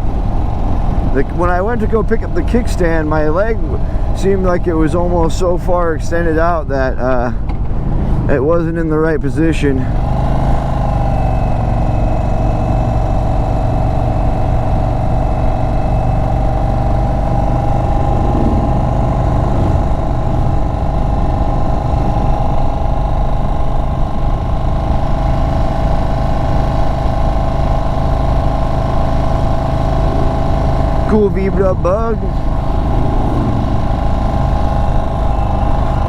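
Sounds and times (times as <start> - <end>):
motorcycle engine cruising: 9.6 - 36.0.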